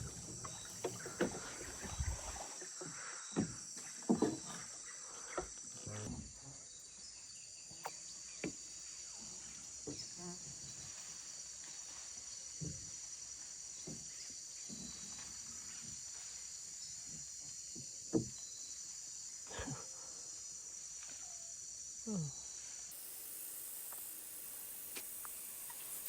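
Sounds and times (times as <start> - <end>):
insect chorus drone: 0.0 - 26.0.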